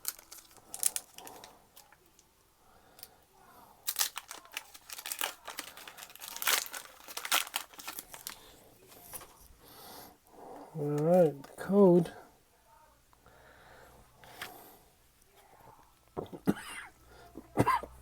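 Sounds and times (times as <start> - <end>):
foil wrapper tearing and crinkling: 0.0 - 2.0, 3.8 - 8.5.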